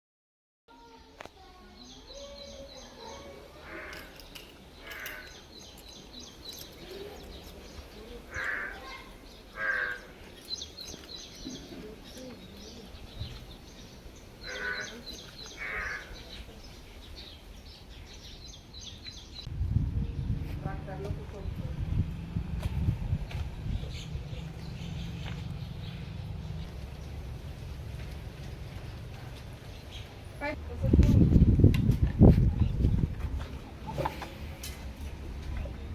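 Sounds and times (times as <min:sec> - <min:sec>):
small birds chirping: 0:00.8 - 0:19.5, 0:22.8 - 0:30.6
crow cawing: 0:03.6 - 0:04.2, 0:04.8 - 0:05.4, 0:08.3 - 0:10.2, 0:14.4 - 0:16.2
loud low rumble: 0:19.5 - 0:29.8.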